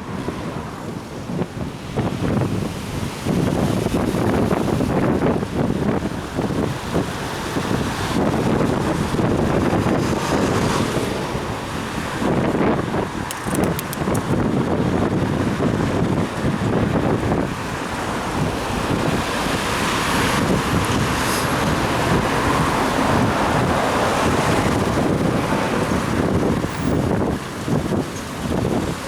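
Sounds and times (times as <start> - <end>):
wind buffeting microphone: 0.0 - 29.0
faint clicks: 13.3 - 14.3.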